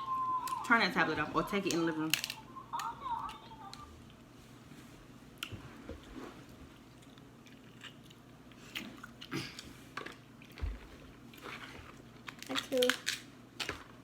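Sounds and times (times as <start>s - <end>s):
shells clicking and crackling: 1.6s - 3.8s
close chewing and eating: 5.4s - 14.0s.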